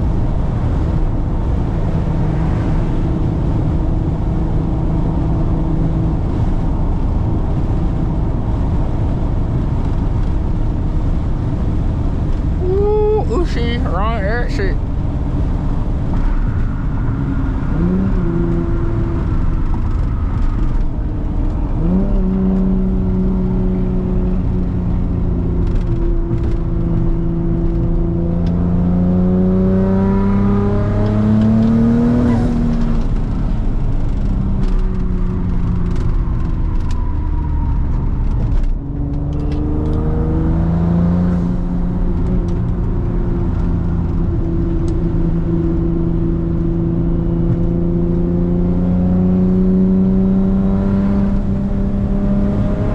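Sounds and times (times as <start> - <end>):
car engine droning: 0.0 - 52.9.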